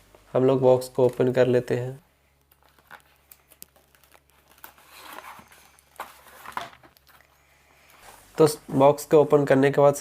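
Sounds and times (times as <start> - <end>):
cardboard box rustling: 3.9 - 7.0.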